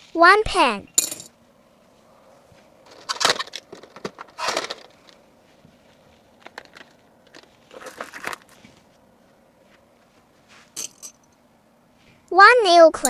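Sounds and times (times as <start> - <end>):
packaging rustling and crinkling: 2.8 - 9.1.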